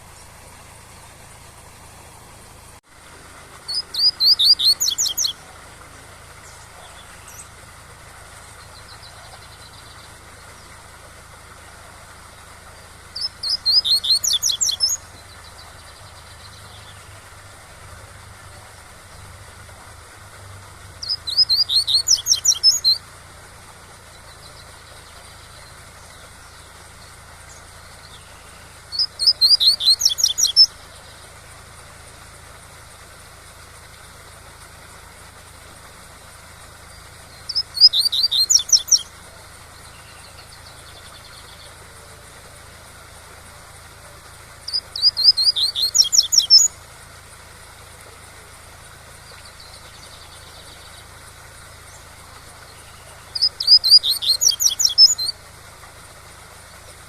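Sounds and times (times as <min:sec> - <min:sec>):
bird singing: 0:00.0 - 0:20.0, 0:20.8 - 0:57.0
waterfall rushing: 0:00.0 - 0:26.4.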